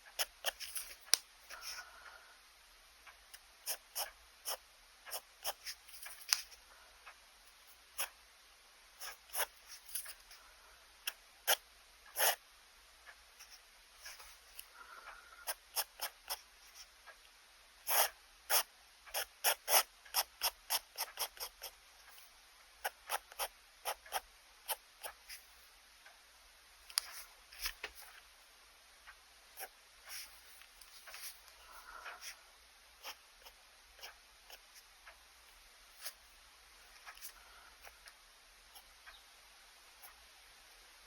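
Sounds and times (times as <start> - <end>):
pen scratching on paper: 0.2 - 1.8, 3.6 - 6.6, 9.0 - 10.3, 11.5 - 12.4, 15.4 - 16.9, 17.8 - 25.5, 29.6 - 32.4, 33.0 - 34.8.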